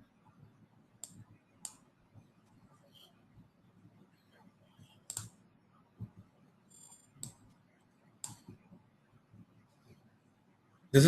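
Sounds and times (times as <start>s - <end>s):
computer mouse clicks: 1.0s - 1.8s, 4.9s - 5.4s, 6.0s - 7.5s, 8.2s - 8.7s.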